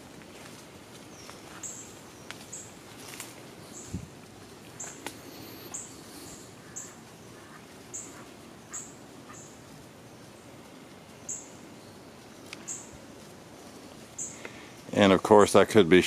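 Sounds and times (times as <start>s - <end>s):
faint woodland ambience: 0.0s - 16.0s
small bird chirping: 1.1s - 2.8s, 4.7s - 10.5s, 11.2s - 12.9s.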